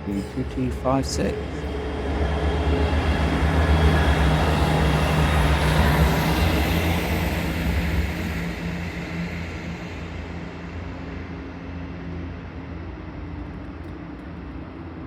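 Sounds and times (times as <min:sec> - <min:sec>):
faint high whine: 0:00.0 - 0:06.1
diesel train engine drone: 0:00.0 - 0:15.0
rail and wheel noise: 0:00.0 - 0:15.0.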